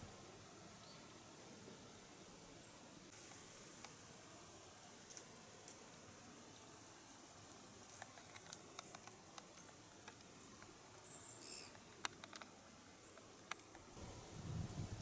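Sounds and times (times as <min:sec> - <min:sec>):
faint clicks and patters: 0:07.4 - 0:14.0
high small-bird call: 0:11.0 - 0:11.8.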